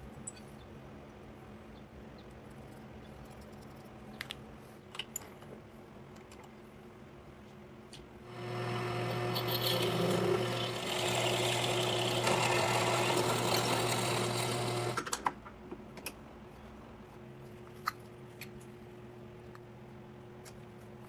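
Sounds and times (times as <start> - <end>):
small motor humming: 8.3 - 15.0.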